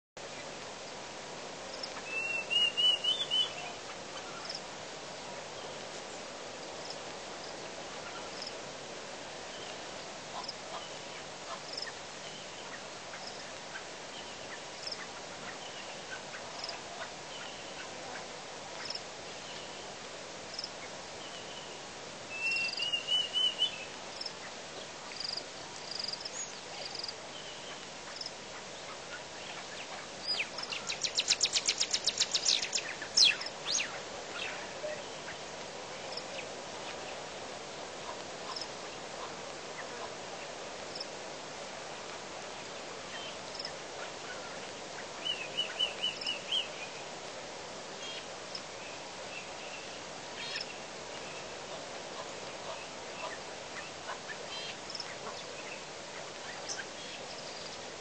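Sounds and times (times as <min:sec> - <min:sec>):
steady background hiss: 0:00.2 - 0:58.0.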